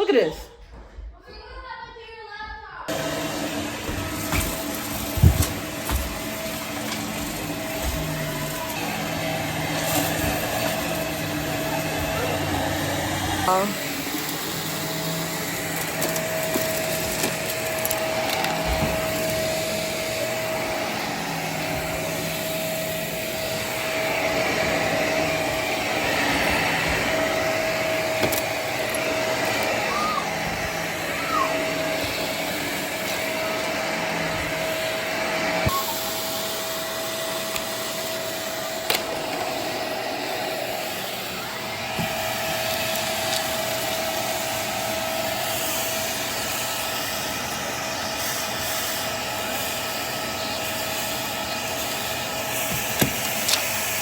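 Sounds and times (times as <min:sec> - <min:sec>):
vacuum cleaner running: 0:00.0 - 0:00.4, 0:02.9 - 0:54.0
vacuum cleaner knocks: 0:03.7 - 0:08.4, 0:18.4 - 0:19.5, 0:41.9 - 0:42.3, 0:52.7 - 0:53.4.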